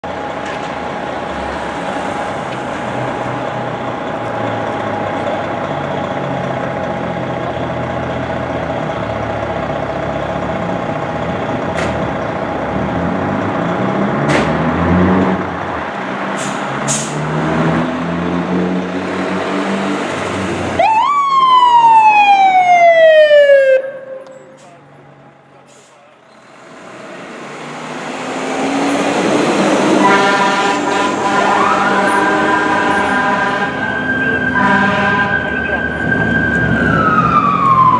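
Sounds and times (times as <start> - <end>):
fire engine diesel engine revving: 0.2 - 20.9, 25.6 - 37.9
air brake hisses: 16.4 - 17.2, 25.7 - 26.1
siren wailing: 20.7 - 24.6, 29.8 - 37.9.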